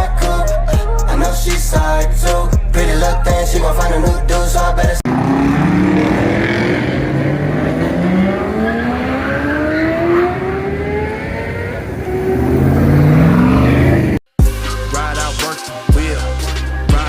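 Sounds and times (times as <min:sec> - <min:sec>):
car engine accelerating: 0:05.0 - 0:14.2.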